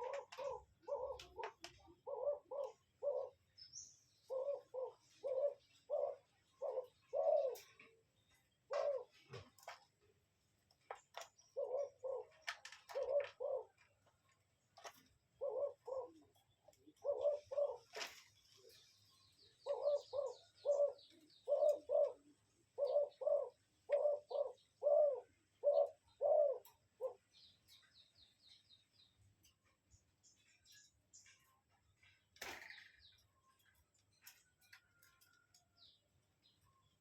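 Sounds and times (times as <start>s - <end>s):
bird calling in low notes: 0.0s - 3.5s, 19.6s - 27.4s.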